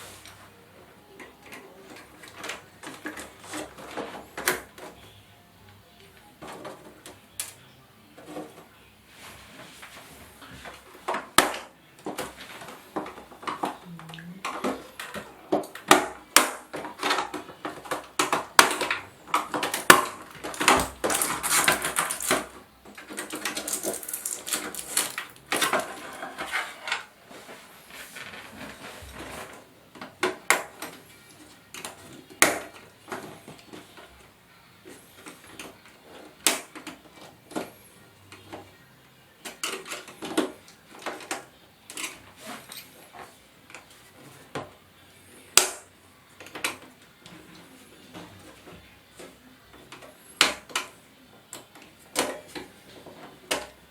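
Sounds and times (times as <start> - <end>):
plastic rattling: 1.2 - 5.0, 10.6 - 34.2
plastic scraping: 1.2 - 5.2, 8.2 - 38.8.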